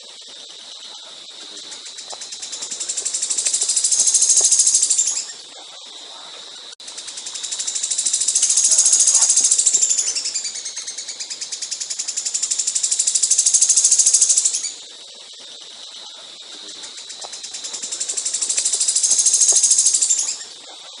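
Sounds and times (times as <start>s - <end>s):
songbird trilling: 1.9s - 5.4s, 7.0s - 14.8s, 16.9s - 20.5s.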